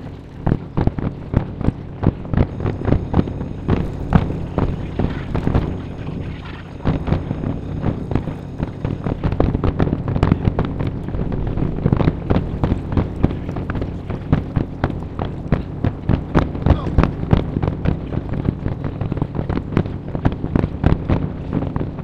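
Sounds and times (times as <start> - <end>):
low rumble: 0.0 - 22.0
fireworks bursting: 0.8 - 21.8.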